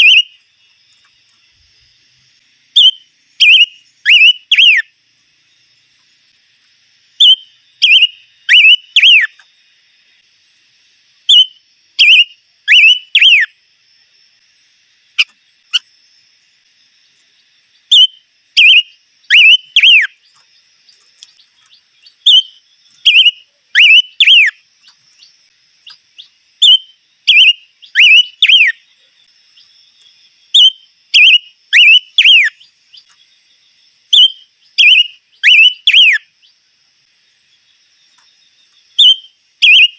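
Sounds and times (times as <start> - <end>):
songbird whistling: 0.0 - 0.4, 2.7 - 4.9, 7.2 - 9.4, 11.2 - 13.6, 17.8 - 20.4, 21.3 - 24.6, 25.8 - 28.9, 30.5 - 33.1, 34.1 - 36.3, 38.9 - 39.9
faint high-pitched hiss: 0.0 - 39.9.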